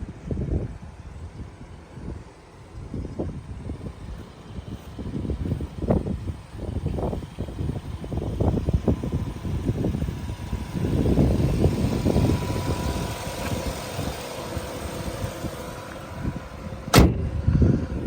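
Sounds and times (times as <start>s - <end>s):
car engine idling: 0.9s - 18.0s.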